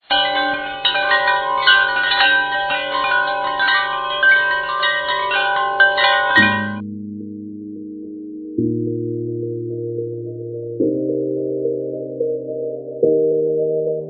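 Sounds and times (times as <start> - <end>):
bright chiming notes: 0.0 - 6.8
low sustained music tones: 0.0 - 14.0.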